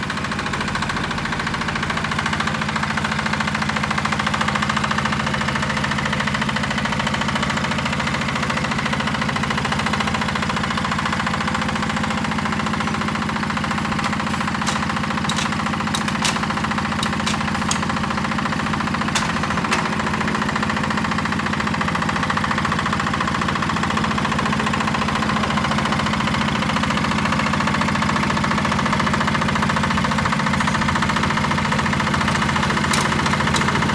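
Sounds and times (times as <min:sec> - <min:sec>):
diesel tractor engine running: 0:00.0 - 0:33.9
sharp clicks: 0:14.0 - 0:18.1.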